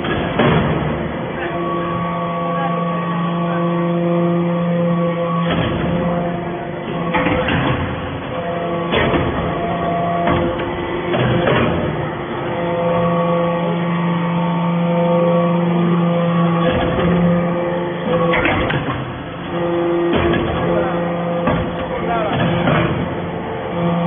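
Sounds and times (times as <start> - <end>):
sharp knocks: 0.0 - 1.0, 4.9 - 6.3, 6.9 - 12.0, 18.1 - 23.2
hydraulic press humming: 0.0 - 24.0.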